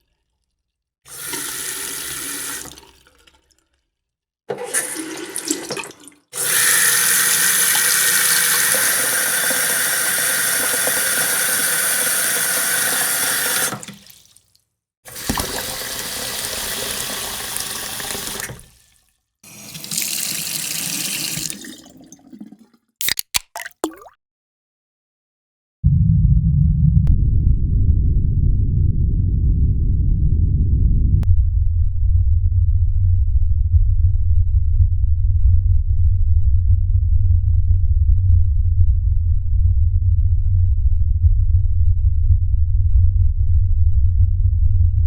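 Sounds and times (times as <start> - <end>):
running water: 1.1 - 3.3, 4.5 - 24.1.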